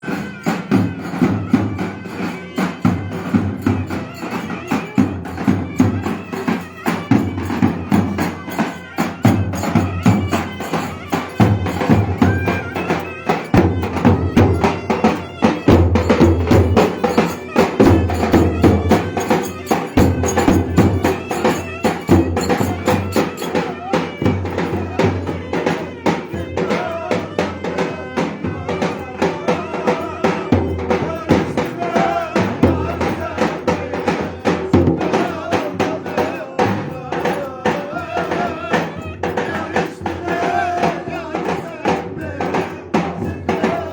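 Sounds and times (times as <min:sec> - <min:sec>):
fast driving percussion: 0:00.0 - 0:43.9
folk melody instrument: 0:00.0 - 0:43.9.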